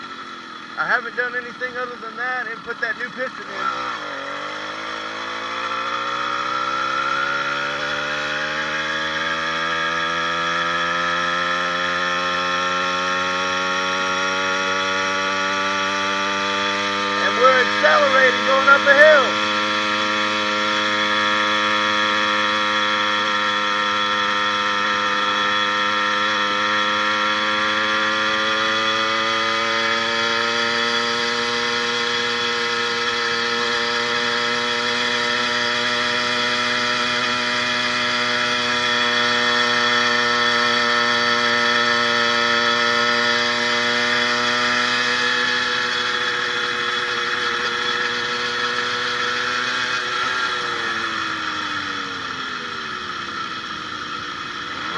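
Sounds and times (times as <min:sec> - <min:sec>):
two-stroke engine revving: 0:00.0 - 0:54.9
person speaking: 0:17.2 - 0:19.4.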